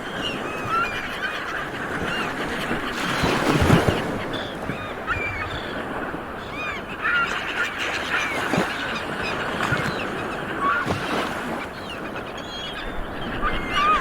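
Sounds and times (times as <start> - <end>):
seabirds calling: 0.0 - 14.0.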